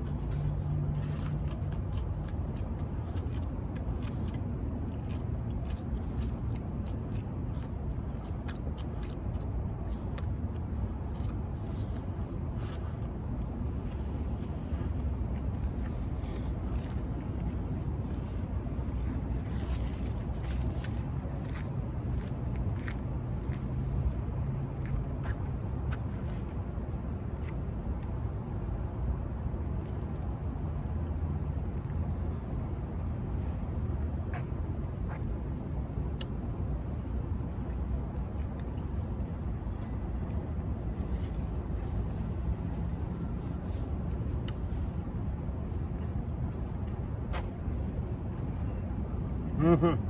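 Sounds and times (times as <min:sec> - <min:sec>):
eating clicks and smacks: 0:00.0 - 0:18.3, 0:31.6 - 0:49.5
chewing: 0:00.0 - 0:28.2, 0:32.6 - 0:49.8
steady low rumble: 0:00.0 - 0:50.0.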